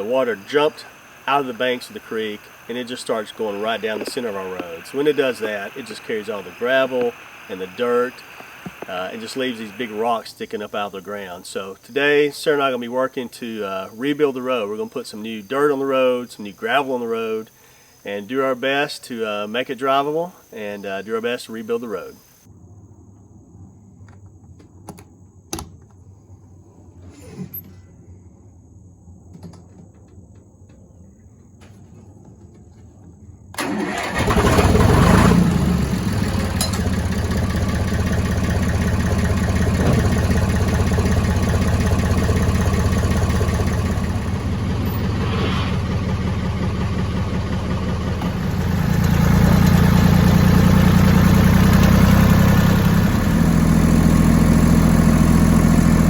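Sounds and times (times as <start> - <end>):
engine starting and running: 0.0 - 10.6, 33.5 - 56.0.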